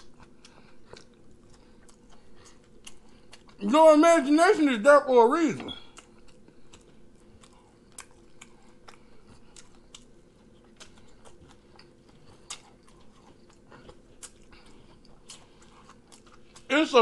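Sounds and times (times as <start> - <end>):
person chewing with mouth smacks: 0.0 - 3.6, 5.8 - 16.7.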